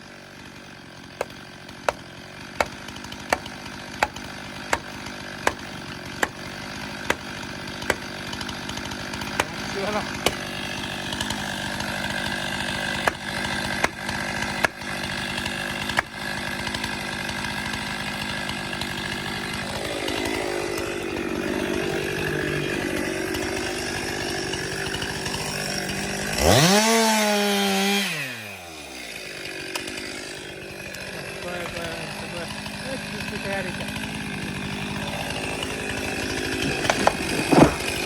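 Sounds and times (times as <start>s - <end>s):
chainsaw running and revving: 0.0s - 38.0s
sharp knocks: 36.6s - 38.0s.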